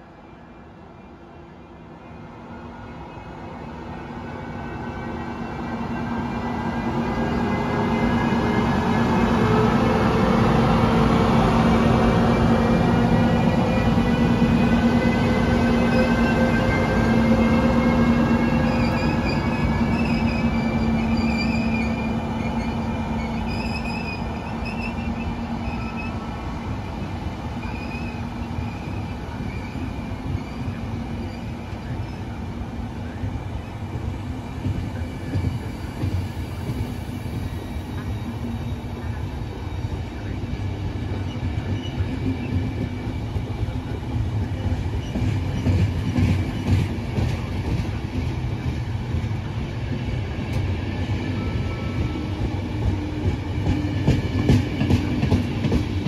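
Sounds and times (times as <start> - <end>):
train wheels rumbling on rails: 5.9 - 56.0
high wheel squeal: 18.7 - 26.2.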